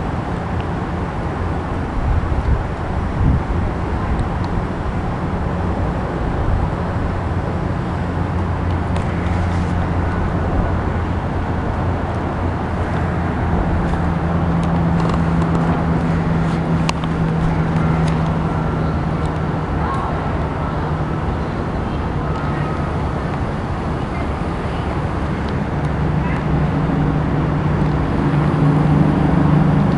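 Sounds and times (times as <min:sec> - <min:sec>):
engine rumble with droning hum: 0:00.0 - 0:29.9.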